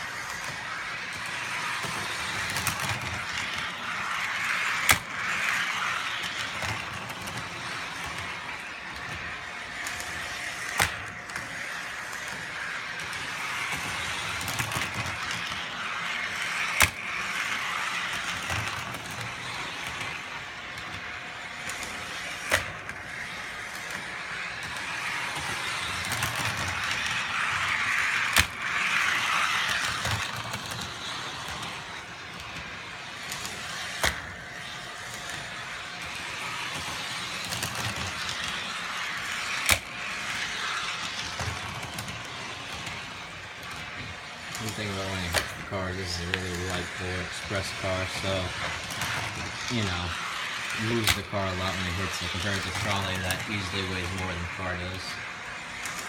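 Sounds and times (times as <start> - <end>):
toy trolley motor whirring: 0.0 - 56.0.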